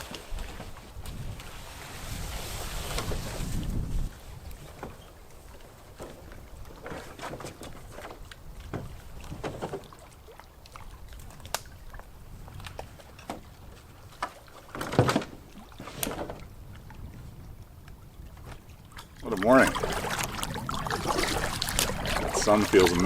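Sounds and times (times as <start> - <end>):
paddle strokes swishing in water: 0.0 - 23.0.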